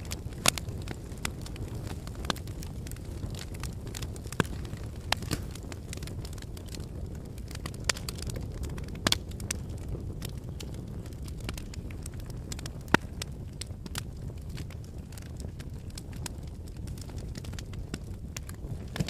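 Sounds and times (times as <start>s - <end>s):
fire crackling and popping: 0.0s - 19.0s
fireplace flames rushing: 0.0s - 19.0s.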